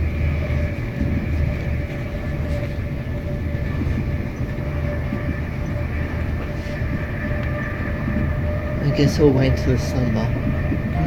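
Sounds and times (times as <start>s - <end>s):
faint steady whine: 0.0s - 11.0s
train wheels rumbling on track: 0.0s - 11.0s.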